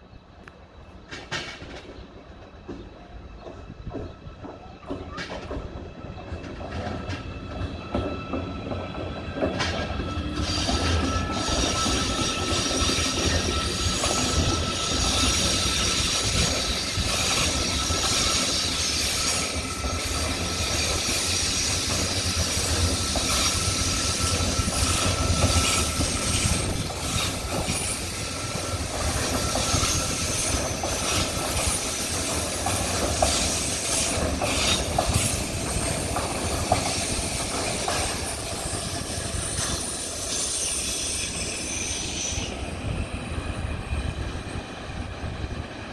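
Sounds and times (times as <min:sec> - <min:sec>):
train wheels rumbling on track: 0:00.0 - 0:45.9
thin wheel squeal: 0:09.8 - 0:35.9.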